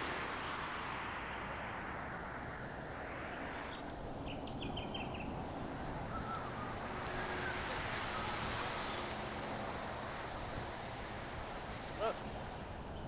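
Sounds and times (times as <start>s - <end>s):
rushing background noise: 0.0s - 13.0s
faint whistled notes: 6.1s - 8.6s.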